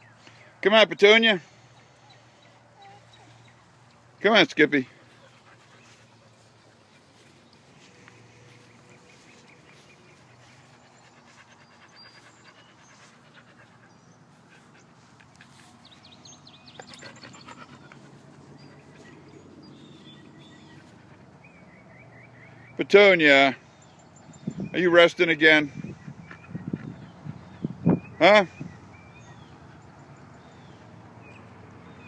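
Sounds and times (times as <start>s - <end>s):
dog panting: 4.9s - 21.5s, 25.8s - 27.8s.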